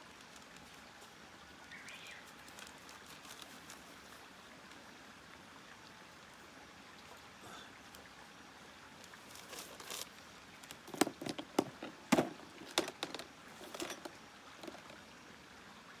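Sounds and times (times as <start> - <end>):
soft steady hiss: 0.0 - 16.0.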